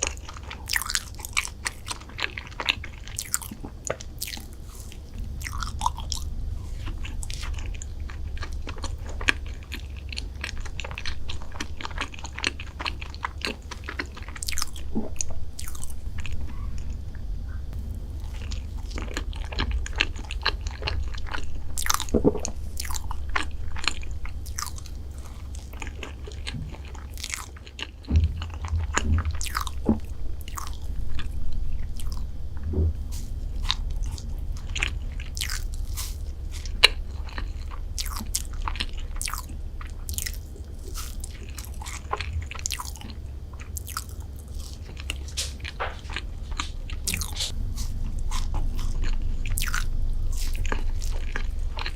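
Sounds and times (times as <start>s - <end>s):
chewing crunches: 0.0s - 51.9s
steady low hum: 0.0s - 51.9s.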